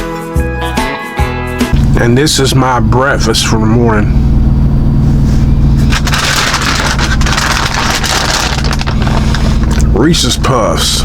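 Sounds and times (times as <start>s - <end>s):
diesel truck engine idling: 1.8s - 11.0s
crackling rustling noise: 5.4s - 9.9s.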